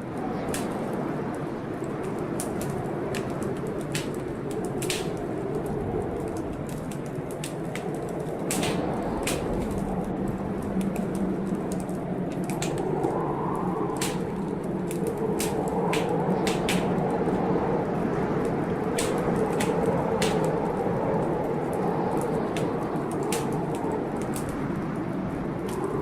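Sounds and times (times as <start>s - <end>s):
rainstorm: 0.0s - 26.0s
wood fire crackling: 0.0s - 26.0s.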